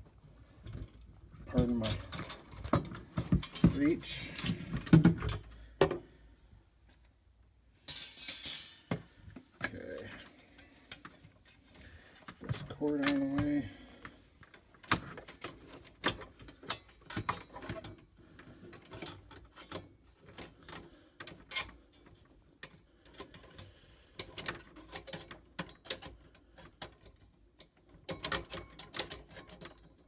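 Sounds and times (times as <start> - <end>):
hand tools clicking and knocking: 1.6 - 6.0, 14.8 - 30.0.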